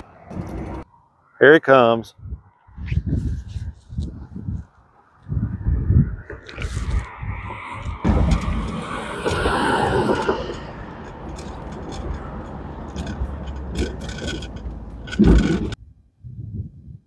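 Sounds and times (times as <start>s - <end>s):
loud thump: 8.0s - 10.8s.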